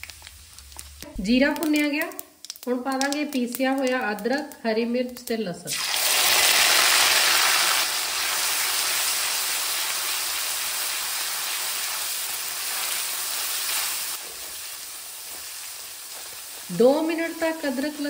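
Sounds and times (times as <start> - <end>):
paste sizzling in hot oil: 5.7 - 18.0.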